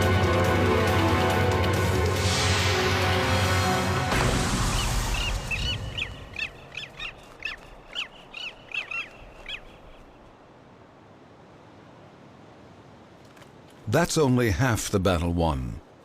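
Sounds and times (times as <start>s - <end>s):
background music: 0.0s - 6.4s
bird giving high calls: 4.7s - 10.2s.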